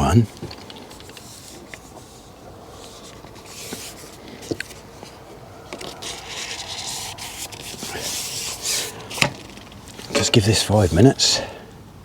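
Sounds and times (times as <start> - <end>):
fishing tackle rubbing and scraping: 0.1 - 11.2.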